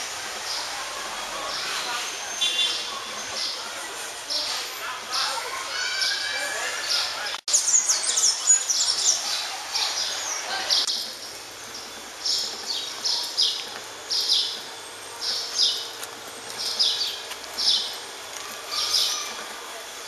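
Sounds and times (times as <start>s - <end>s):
low street hum: 0.0s - 20.0s
birds chirping: 0.3s - 20.0s.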